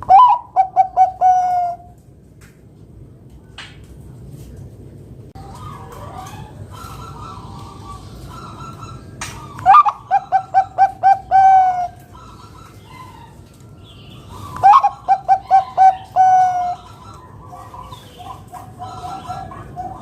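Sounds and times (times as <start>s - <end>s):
dove cooing loudly: 0.0s - 1.9s, 5.4s - 13.4s, 14.2s - 20.0s.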